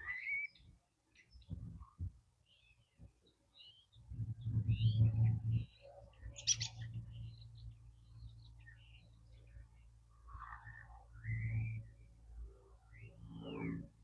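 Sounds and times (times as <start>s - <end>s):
robins chirping: 3.6s - 9.4s
low hum: 4.1s - 14.0s.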